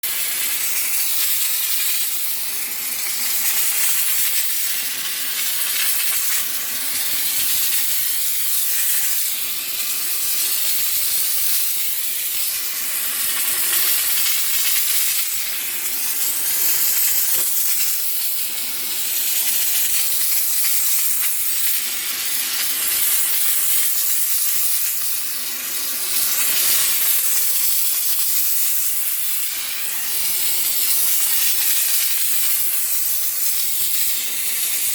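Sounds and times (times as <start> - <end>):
steam cleaner hissing: 0.0 - 34.9.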